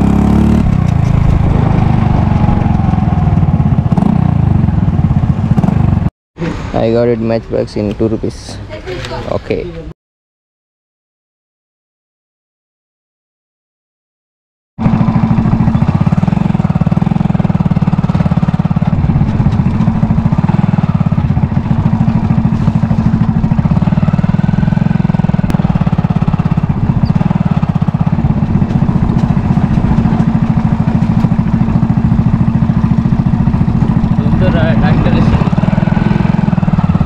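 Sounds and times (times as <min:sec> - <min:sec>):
motorcycle engine running: 0:00.0 - 0:06.1, 0:14.8 - 0:37.0.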